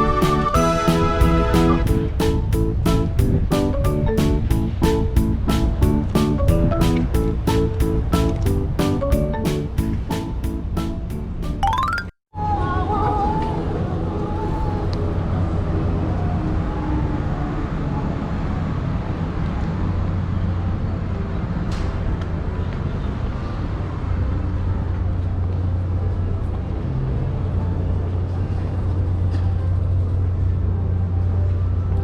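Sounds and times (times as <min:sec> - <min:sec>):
low engine rumble: 0:00.0 - 0:11.4.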